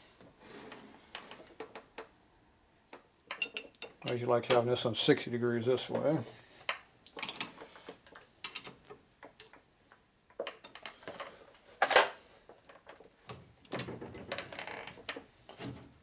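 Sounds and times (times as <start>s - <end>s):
metal tools clinking and clanking: 3.3s - 4.7s, 7.2s - 7.6s, 8.4s - 8.8s.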